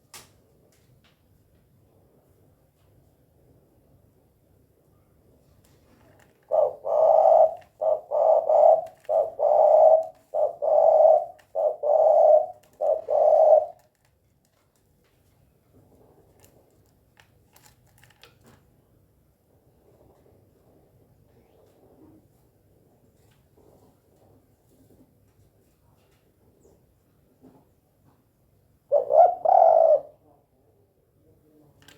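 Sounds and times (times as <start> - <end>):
dove cooing: 6.4 - 13.9, 28.9 - 30.2.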